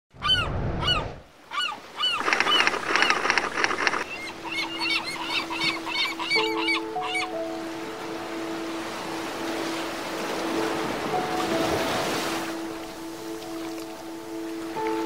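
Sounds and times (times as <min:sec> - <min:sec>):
bird calls: 0:00.2 - 0:07.8.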